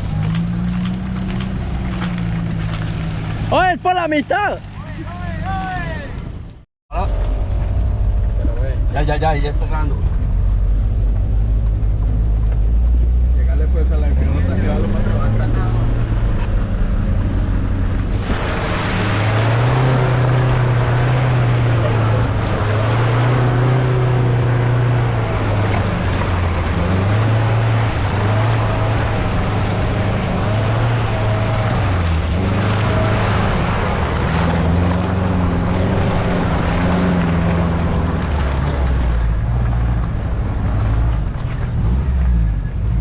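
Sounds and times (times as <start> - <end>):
steady rushing noise: 14.6 - 41.8.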